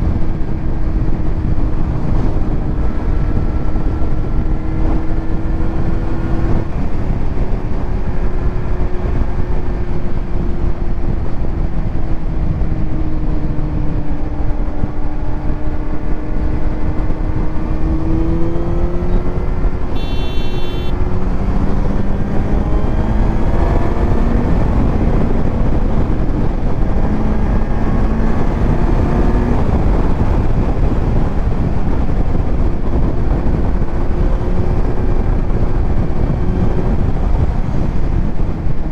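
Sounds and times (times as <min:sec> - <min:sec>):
motorcycle engine cruising: 0:00.0 - 0:38.9
wind rush on microphone: 0:00.0 - 0:38.9
brief high-pitched tone: 0:19.9 - 0:20.9.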